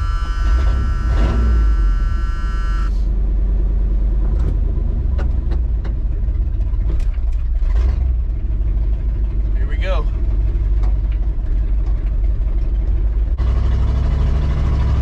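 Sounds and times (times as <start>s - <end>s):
steady high tone: 0.0s - 3.1s
car engine rumbling: 0.0s - 15.0s.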